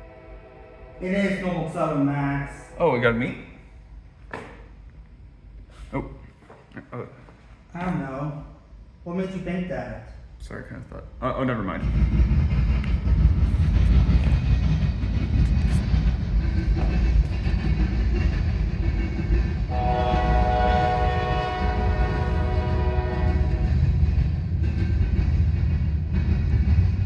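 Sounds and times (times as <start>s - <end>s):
freight train rumbling past: 0.0s - 3.8s, 10.4s - 27.0s
locomotive horn blast: 19.7s - 23.9s.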